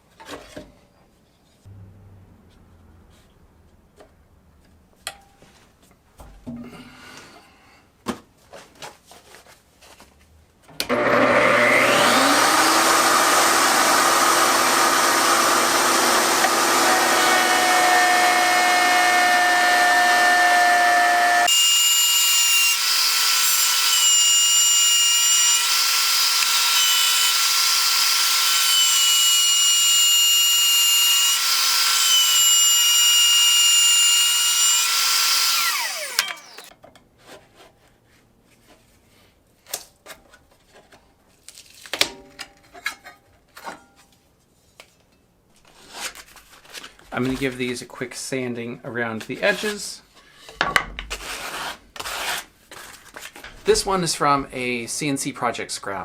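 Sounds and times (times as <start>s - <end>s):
electric router whining: 10.9s - 36.7s.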